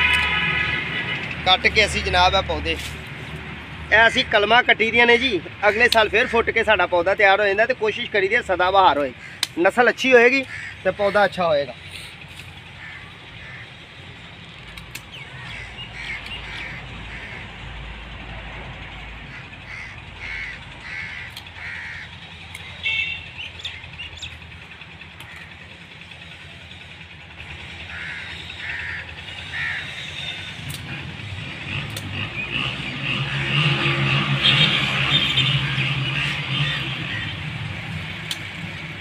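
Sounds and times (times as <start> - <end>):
bird calling: 9.0 - 9.7, 10.3 - 14.1, 14.9 - 17.6, 19.3 - 26.2, 27.8 - 30.8
sharp clicks: 9.4 - 9.7, 14.6 - 15.2, 21.3 - 21.6, 22.4 - 22.8, 30.6 - 31.0, 31.8 - 32.3, 38.2 - 38.7.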